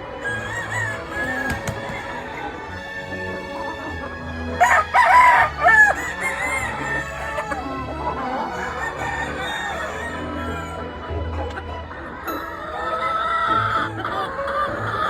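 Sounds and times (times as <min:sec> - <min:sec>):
background music: 0:00.0 - 0:15.0
chickens clucking: 0:00.0 - 0:15.0
rooster crowing: 0:00.2 - 0:03.5, 0:04.6 - 0:10.9.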